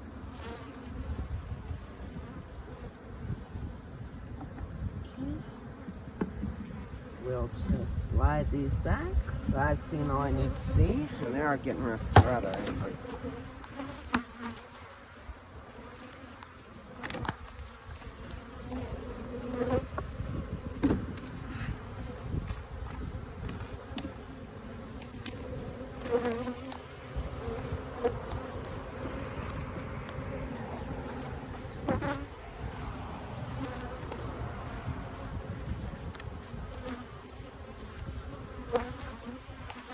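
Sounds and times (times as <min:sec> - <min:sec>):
bees buzzing: 0:00.0 - 0:39.9
wooden hive frames knocking: 0:11.2 - 0:13.0.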